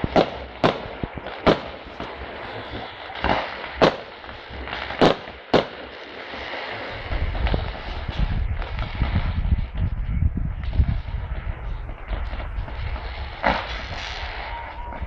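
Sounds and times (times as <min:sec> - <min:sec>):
fireworks bangs: 0:00.0 - 0:15.0
fireworks crackle: 0:00.0 - 0:15.0
low rumble: 0:06.8 - 0:15.0.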